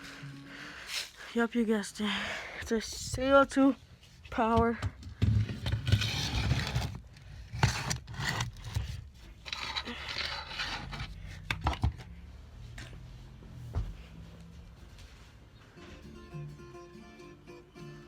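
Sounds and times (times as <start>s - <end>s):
handling noise scraping and rubbing: 5.2s - 12.0s.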